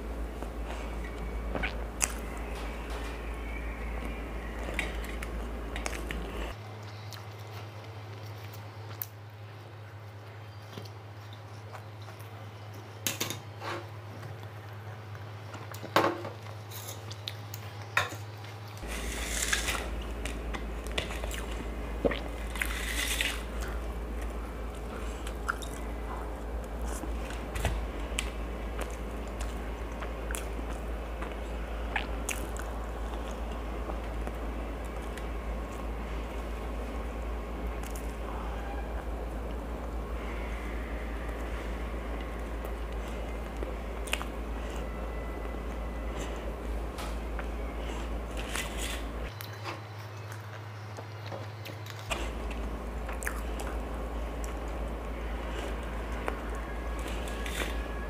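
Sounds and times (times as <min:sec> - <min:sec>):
wet chewing and biting: 0:42.2 - 0:46.4.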